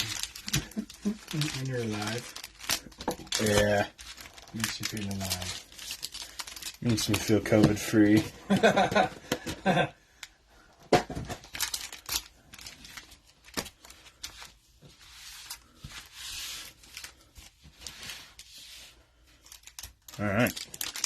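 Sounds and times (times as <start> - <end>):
foil wrapper tearing and crinkling: 0.0 - 8.2, 11.4 - 14.5, 19.4 - 21.0.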